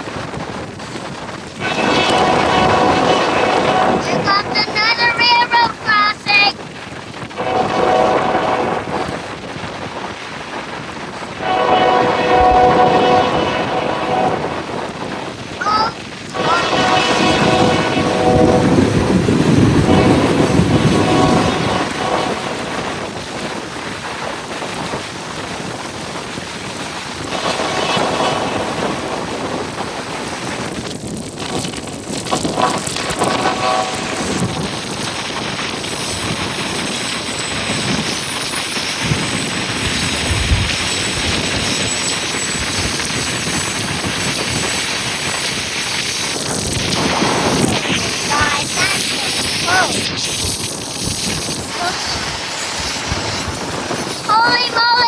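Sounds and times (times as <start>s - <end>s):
road and wind noise: 0.0s - 55.0s
steady rushing noise: 0.0s - 55.0s
locomotive air horn blasts: 1.6s - 6.2s, 7.3s - 9.6s, 11.4s - 23.2s, 27.2s - 29.6s, 32.3s - 37.0s.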